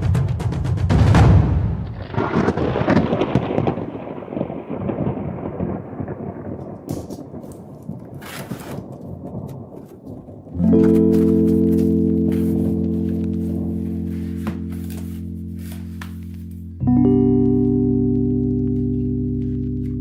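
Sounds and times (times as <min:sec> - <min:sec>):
thunder rumbling: 0:01.1 - 0:11.2.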